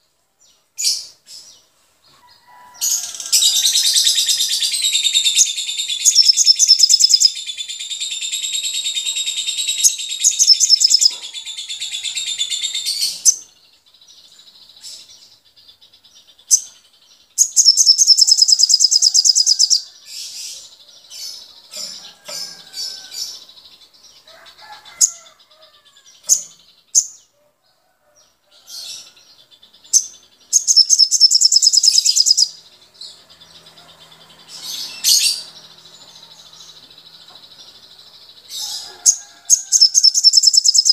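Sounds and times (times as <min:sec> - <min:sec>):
bird chirps: 0:00.0 - 0:27.5, 0:28.2 - 0:40.9
songbirds warbling: 0:00.0 - 0:40.9
fast rattling bird trill: 0:02.8 - 0:13.8, 0:15.9 - 0:20.5, 0:29.9 - 0:40.9.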